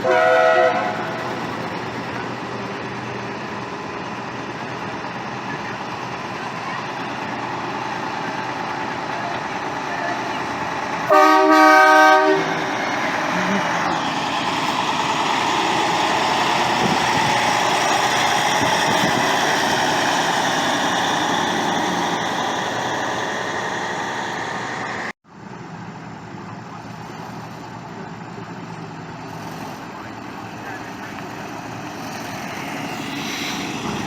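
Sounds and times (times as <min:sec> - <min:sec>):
truck horn blast: 0:00.0 - 0:01.2, 0:11.1 - 0:12.7
heavy truck driving past: 0:00.0 - 0:34.0.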